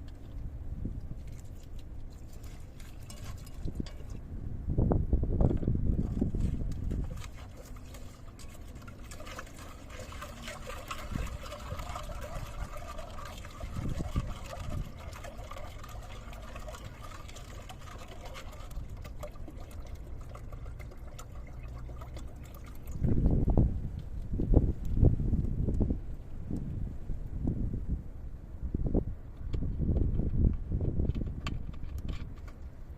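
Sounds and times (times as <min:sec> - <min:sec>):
wind rumble on microphone: 0:00.0 - 0:32.9
liquid pouring: 0:01.2 - 0:04.2, 0:06.0 - 0:23.4.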